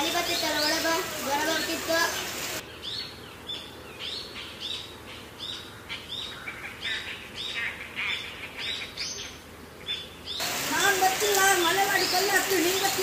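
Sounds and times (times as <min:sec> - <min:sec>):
bird chirping: 0:00.2 - 0:10.5.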